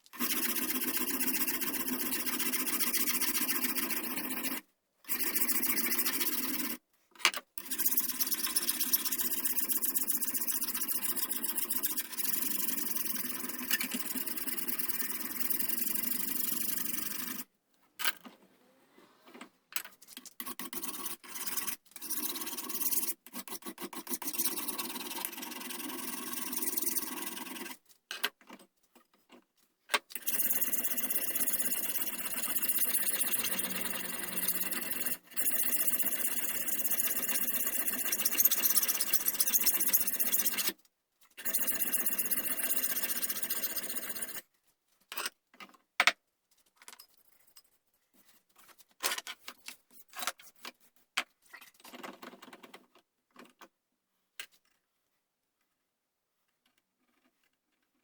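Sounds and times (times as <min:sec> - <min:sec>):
tool scraping wood: 0:20.1 - 0:27.8, 0:30.2 - 0:40.7, 0:41.4 - 0:44.4.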